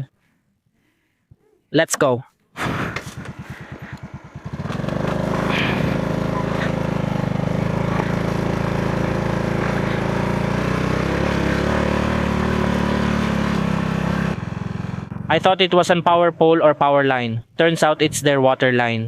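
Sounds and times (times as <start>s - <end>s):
motorcycle engine idling and revving: 2.6s - 17.0s.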